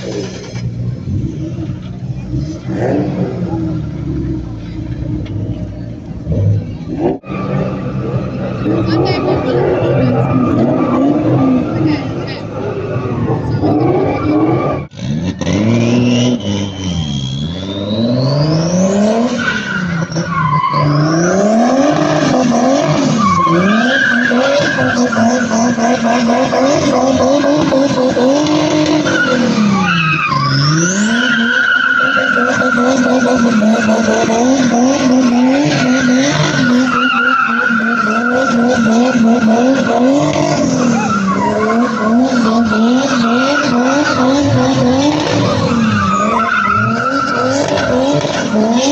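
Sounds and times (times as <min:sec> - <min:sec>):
car engine revving: 0:00.0 - 0:48.9
tyres squealing: 0:23.2 - 0:48.9.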